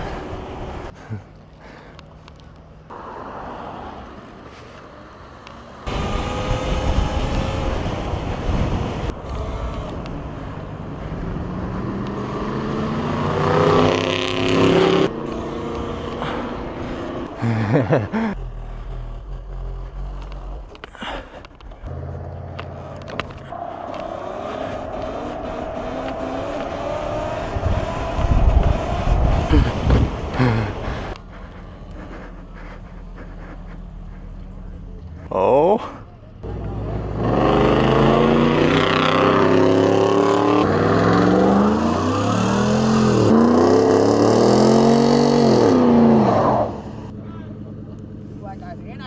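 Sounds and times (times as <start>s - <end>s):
vehicle engines running: 4.0s - 49.0s
rushing wind noise: 5.9s - 12.7s, 23.7s - 31.2s
engine accelerating through gears: 36.4s - 48.4s.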